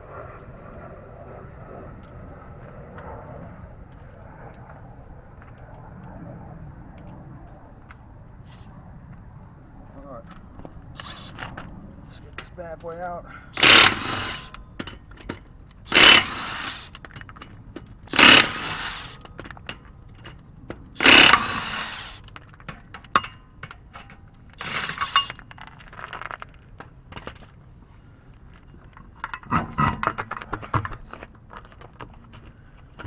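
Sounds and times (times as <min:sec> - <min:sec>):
impact wrench bursts: 0:13.6 - 0:14.9, 0:15.9 - 0:17.0, 0:18.1 - 0:19.3, 0:21.0 - 0:22.3, 0:24.6 - 0:25.4
metal clinks of tools: 0:23.0 - 0:25.4.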